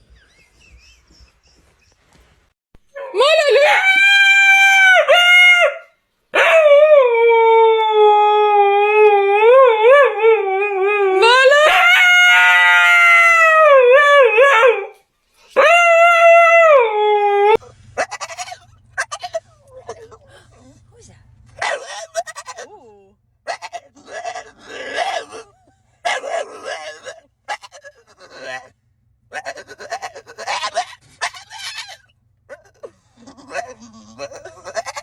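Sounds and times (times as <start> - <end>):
dog howling: 2.9 - 15.0, 15.6 - 20.4, 21.6 - 28.7, 29.3 - 35.0
low steady hum: 17.2 - 35.0.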